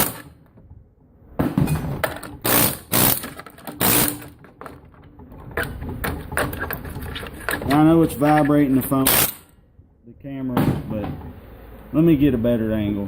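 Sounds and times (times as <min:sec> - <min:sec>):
air chisel rattling: 0:01.7 - 0:09.6.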